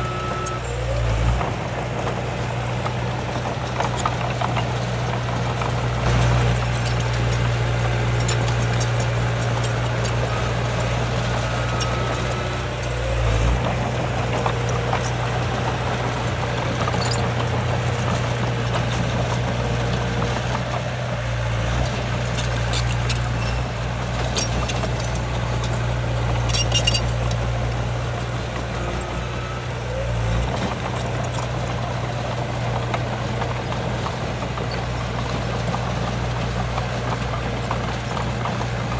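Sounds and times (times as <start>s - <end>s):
diesel engine droning: 0.0s - 38.9s
metallic clicks and clanks: 24.2s - 27.5s.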